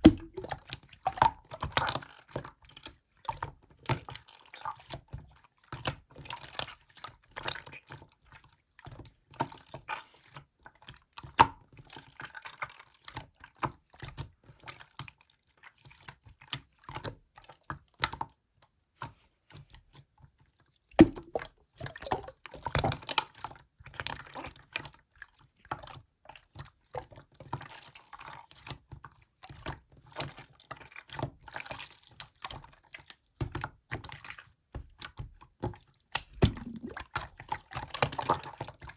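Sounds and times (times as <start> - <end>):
slime squelching by hand: 0.0 - 0.6, 36.4 - 37.0.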